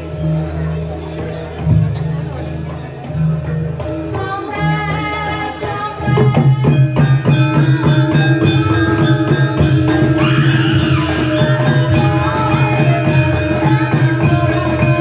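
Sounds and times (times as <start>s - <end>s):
drums beating: 0.0s - 15.0s
held pitched instrument tones: 6.1s - 15.0s.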